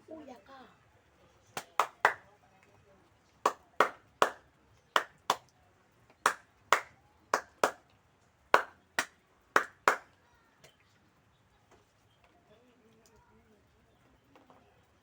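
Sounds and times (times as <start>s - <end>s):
sharp hand claps: 1.5s - 2.3s, 3.4s - 5.5s, 6.1s - 7.9s, 8.5s - 10.2s.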